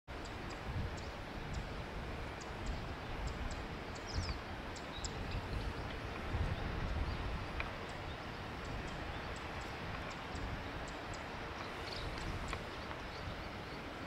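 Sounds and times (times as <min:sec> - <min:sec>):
small birds chirping: 0:00.1 - 0:14.0.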